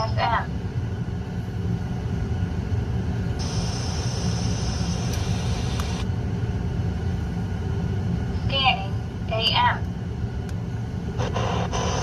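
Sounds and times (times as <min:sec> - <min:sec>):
road rumble inside car: 0:02.9 - 0:12.0.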